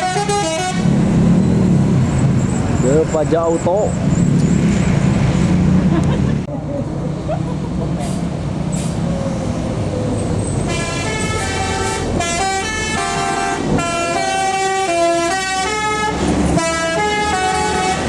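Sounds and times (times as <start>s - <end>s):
multi-tone air horn melody: 0.0s - 0.9s, 10.7s - 18.0s
bus engine: 0.0s - 18.0s
road noise: 0.0s - 18.0s.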